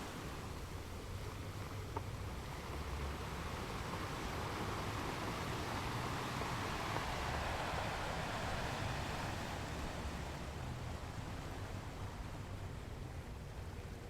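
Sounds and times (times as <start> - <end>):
ocean waves washing onto beach: 0.0 - 13.4.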